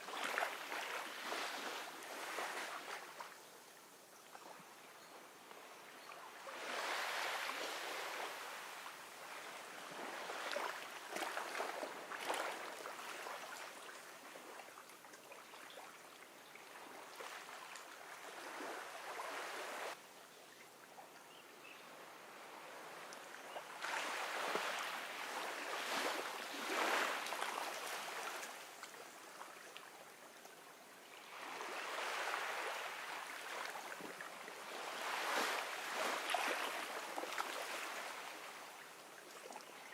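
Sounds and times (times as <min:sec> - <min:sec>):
ocean waves washing onto beach: 0:06.4 - 0:14.6, 0:22.1 - 0:29.2, 0:31.2 - 0:38.8.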